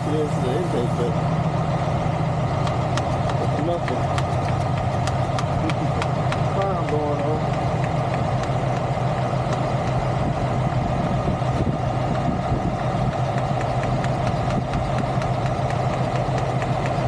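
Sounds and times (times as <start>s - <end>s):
large engine idling: 0.0s - 17.0s.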